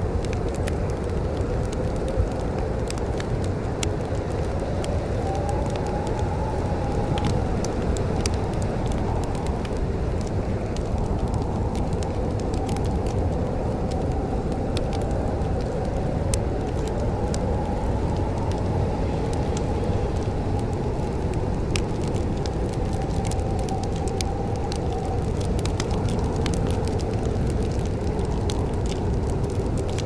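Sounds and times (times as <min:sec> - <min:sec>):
fire pops and snaps: 0:00.0 - 0:30.0
wood fire crackling: 0:00.0 - 0:30.0.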